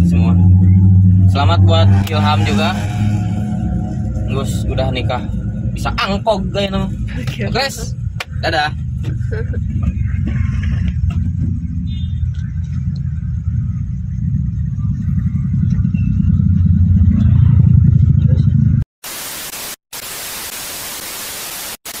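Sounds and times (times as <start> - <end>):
road noise: 0.0 - 18.9
vehicle engine rumble in cab: 3.6 - 18.8
static hiss: 19.0 - 22.0.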